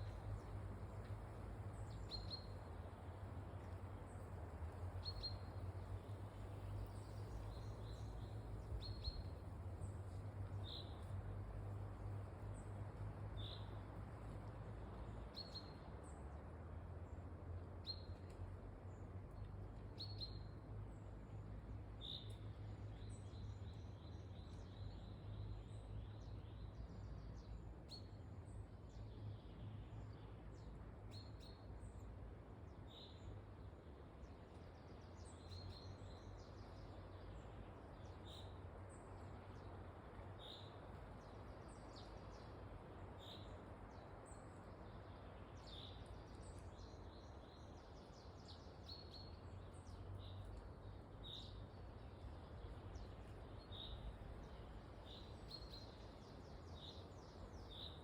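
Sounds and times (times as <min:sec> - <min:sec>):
small birds chirping: 0:34.2 - 0:58.0.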